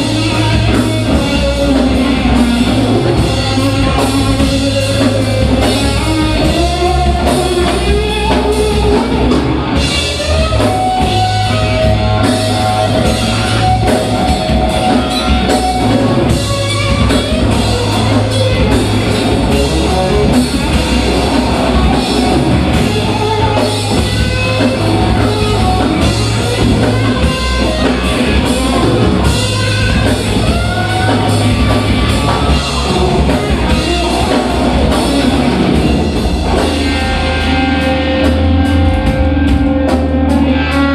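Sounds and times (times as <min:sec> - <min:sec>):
bass guitar: 0:00.0 - 0:40.9
drum kit: 0:00.0 - 0:40.9
electric guitar: 0:00.0 - 0:40.9
person singing: 0:30.5 - 0:36.1.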